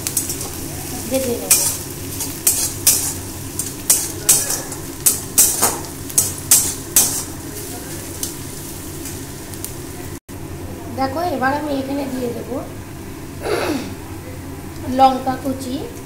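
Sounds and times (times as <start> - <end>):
food sizzling in oil: 0.0 - 10.2
metal spatula scraping pan: 1.4 - 7.4.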